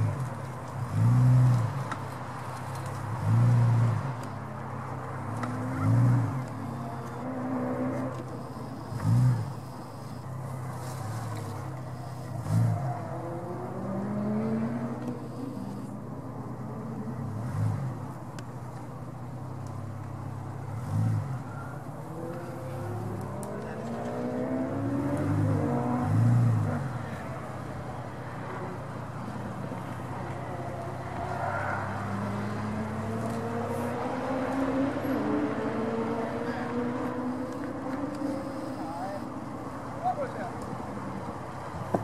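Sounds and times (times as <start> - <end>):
car engine revving: 5.2 - 18.2, 20.1 - 39.2.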